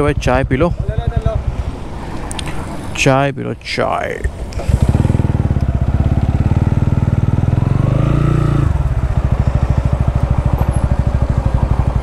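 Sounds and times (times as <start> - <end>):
motorcycle engine idling: 0.0 - 1.8, 4.3 - 12.0.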